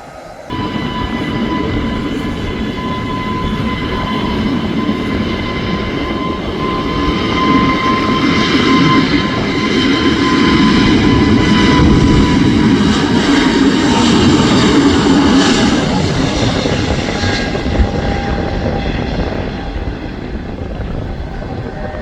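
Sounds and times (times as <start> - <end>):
jet engines at takeoff: 0.0 - 22.0.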